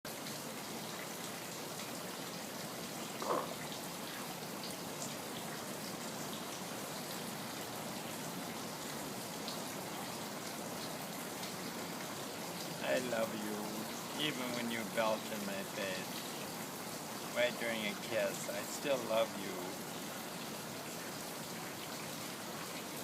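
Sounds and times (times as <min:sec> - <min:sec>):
steady hiss: 0:01.2 - 0:23.0
dog belching: 0:03.2 - 0:03.6.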